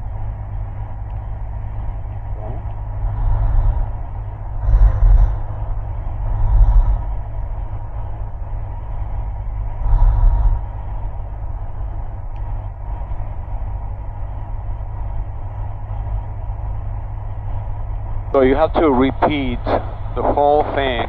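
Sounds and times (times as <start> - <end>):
propeller engine drone: 0.0 - 21.0
rushing air noise: 0.8 - 21.0.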